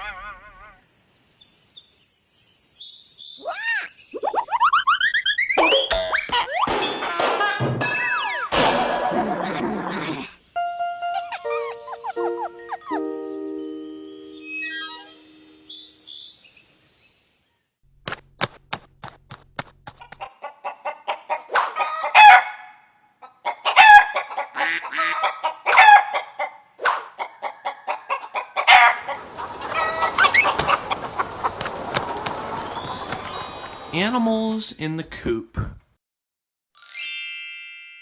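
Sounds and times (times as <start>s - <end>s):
chickens clucking: 9.1s - 10.3s, 19.9s - 22.6s, 23.2s - 33.8s
chime-like music: 10.6s - 16.4s, 36.8s - 38.0s
rooster crowing: 21.6s - 22.7s, 25.2s - 26.3s, 28.6s - 30.5s.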